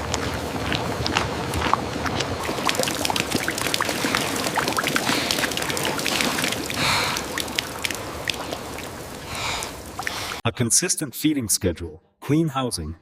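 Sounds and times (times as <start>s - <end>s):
pouring rustling noise: 0.0s - 10.4s.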